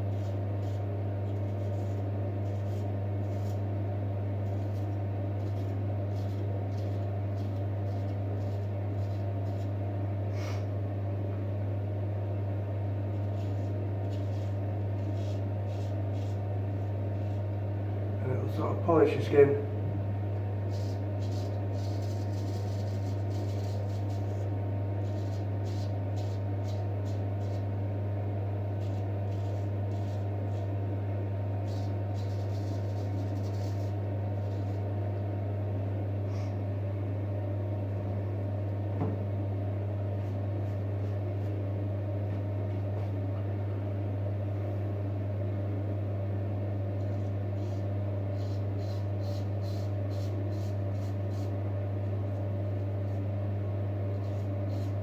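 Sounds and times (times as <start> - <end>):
razor scraping stubbled skin: 0.0 - 3.7, 4.4 - 9.8, 13.1 - 17.5, 20.6 - 27.8, 28.7 - 30.8, 31.6 - 34.9, 47.0 - 51.6, 54.0 - 55.0.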